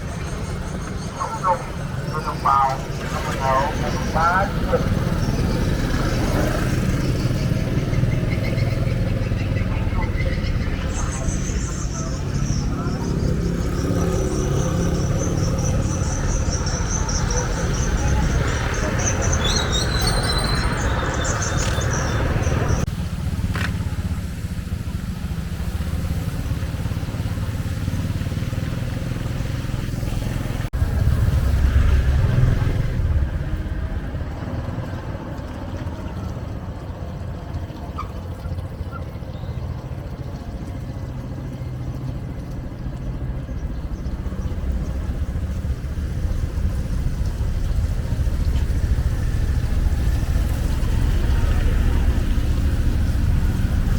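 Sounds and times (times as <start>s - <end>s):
loud vehicle passing: 0.0s - 53.9s
motorcycle traffic rumble: 0.0s - 53.9s.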